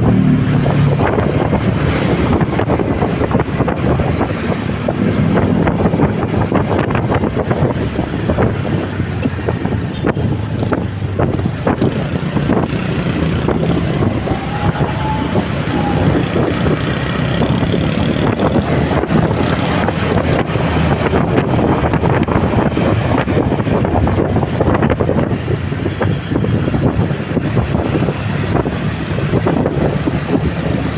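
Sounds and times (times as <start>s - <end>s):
motorcycle engine: 0.0s - 29.8s
road noise: 0.0s - 30.9s
wind buffeting microphone: 0.0s - 30.9s.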